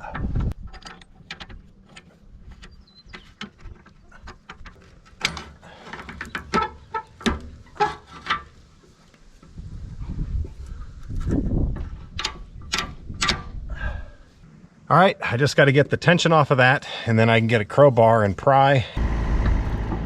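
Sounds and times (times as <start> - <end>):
metal tools clinking: 0.1 - 8.5.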